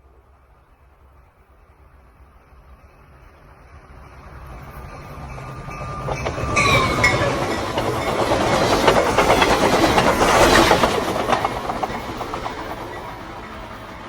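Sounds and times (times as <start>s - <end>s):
train wheels clattering: 4.7s - 14.0s.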